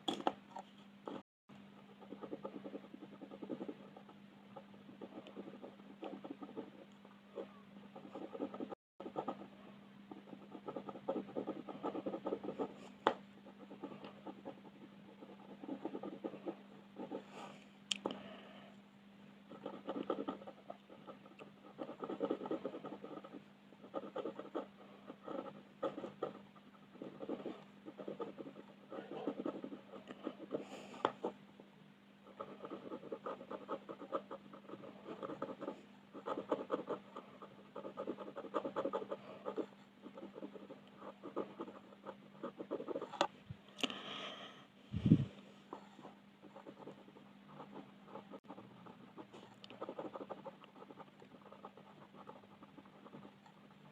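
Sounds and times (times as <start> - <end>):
steady low hum: 0.0 - 53.9
pencil scratching on paper: 1.8 - 17.6, 19.5 - 31.4, 32.2 - 43.3, 45.7 - 53.9.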